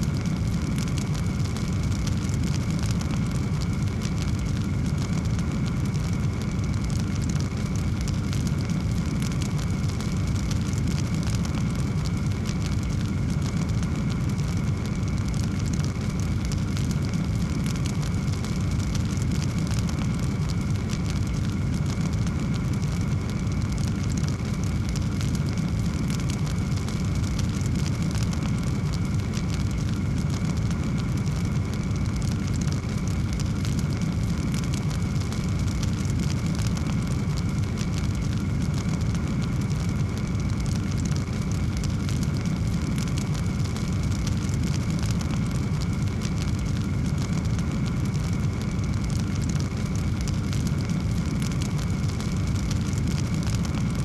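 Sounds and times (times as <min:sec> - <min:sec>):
fireplace fire crackling: 0:00.0 - 0:54.0
low rumble of flames: 0:00.0 - 0:54.0.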